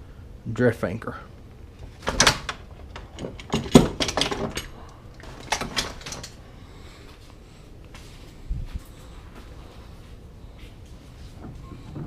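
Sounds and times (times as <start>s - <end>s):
gear knocking and clattering: 1.8s - 6.4s.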